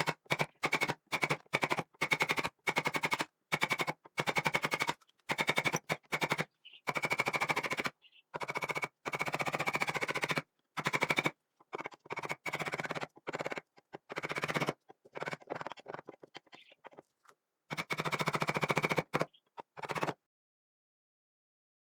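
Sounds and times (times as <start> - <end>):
power tool rattling in bursts: 0.0 - 11.3.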